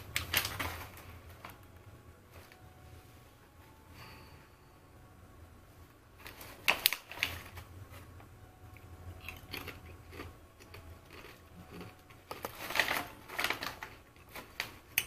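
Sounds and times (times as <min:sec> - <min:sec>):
person chewing crunchy chips: 0:09.1 - 0:13.2.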